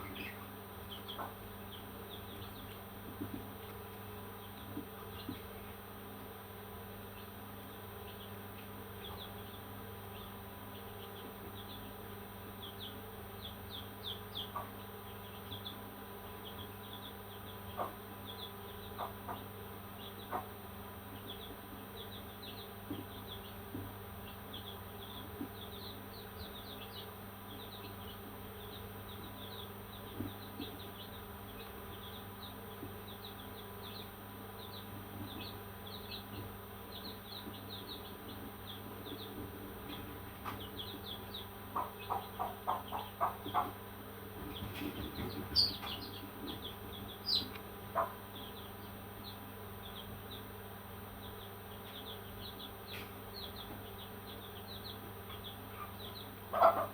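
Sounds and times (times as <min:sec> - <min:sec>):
constant hum: 0:00.0 - 0:56.9
parrots chirping: 0:45.2 - 0:48.7.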